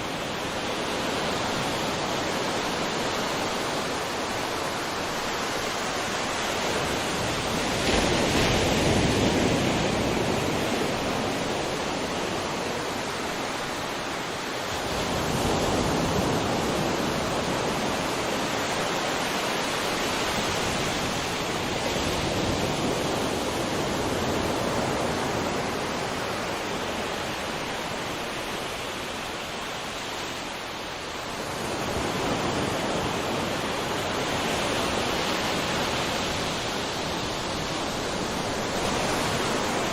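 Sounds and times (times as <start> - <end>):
ocean surf washing in: 0.0 - 39.9.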